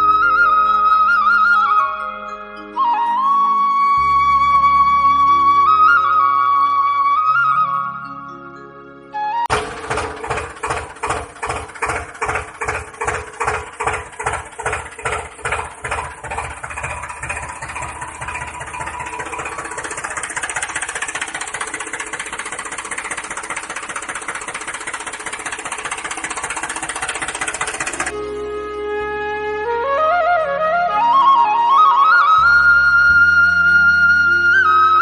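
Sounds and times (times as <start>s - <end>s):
tractor engine thumping: 9.5s - 28.1s.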